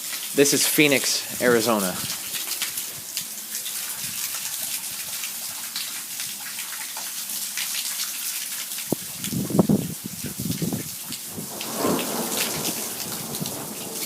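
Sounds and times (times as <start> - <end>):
heavy rain pouring: 0.0 - 5.8, 8.6 - 14.0
raindrops patter on surfaces: 0.0 - 14.0.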